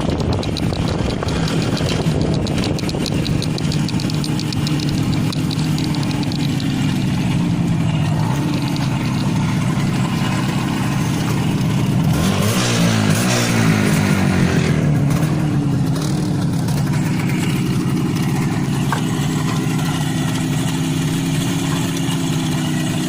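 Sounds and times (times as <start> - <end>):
fast light ticking: 0.0 - 10.5
two-stroke engine running: 0.0 - 23.0.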